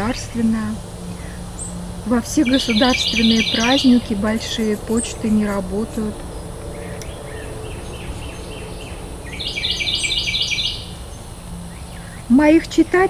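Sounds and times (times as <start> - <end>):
faint bird chirps: 0.0 - 13.0
songbird whistling notes: 0.0 - 13.0
steady low hum: 0.0 - 13.0.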